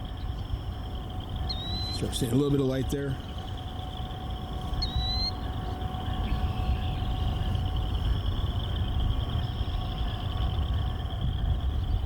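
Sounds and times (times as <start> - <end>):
diesel locomotive rumble: 0.0 - 12.0
faint steady tones: 0.0 - 12.0.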